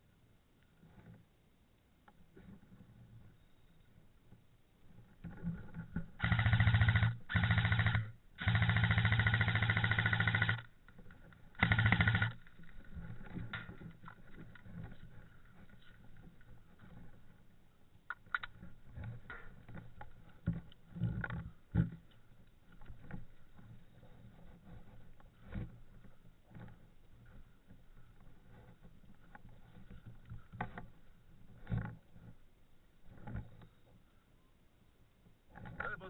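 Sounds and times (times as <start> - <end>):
faint clicks: 2.0 - 32.4
airsoft gun full-auto bursts: 6.2 - 10.7, 11.5 - 12.5.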